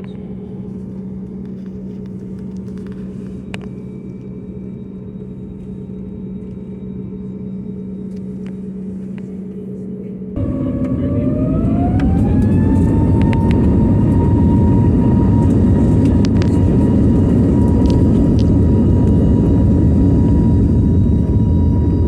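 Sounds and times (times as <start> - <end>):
jet engines roaring: 10.4 - 22.0.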